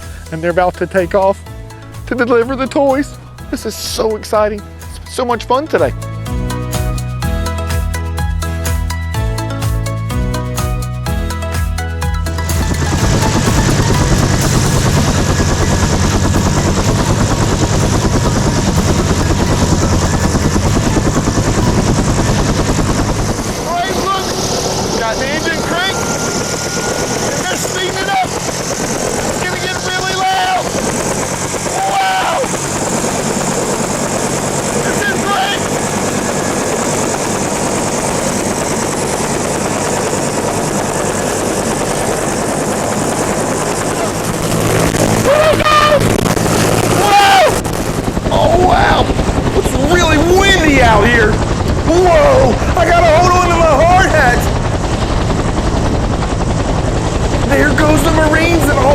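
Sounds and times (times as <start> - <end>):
helicopter rotor beating: 0.0 - 58.9
low hum: 9.2 - 58.9.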